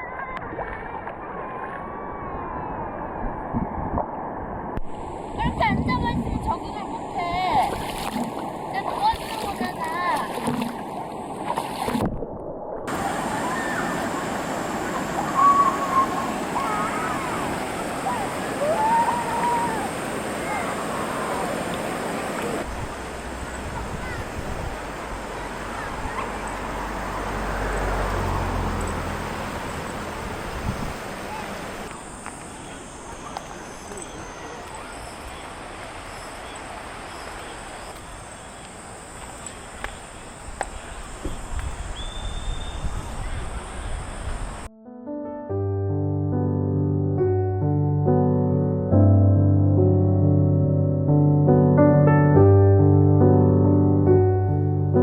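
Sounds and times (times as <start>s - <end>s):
stream rushing over rocks: 12.9s - 44.7s.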